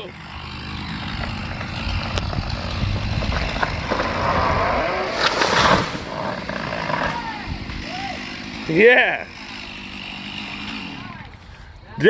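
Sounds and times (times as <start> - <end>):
truck engine running under load: 0.0 - 11.6
tree falling with crash: 1.1 - 7.4.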